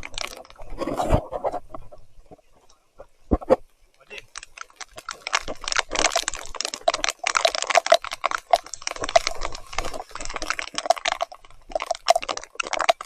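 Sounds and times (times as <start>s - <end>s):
rain and mud spattering on bike: 0.0s - 0.6s, 4.2s - 13.0s.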